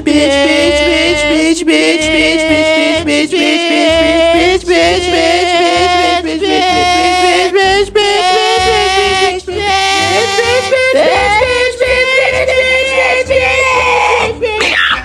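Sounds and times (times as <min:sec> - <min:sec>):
people yowling like cats: 0:10.2 - 0:15.0.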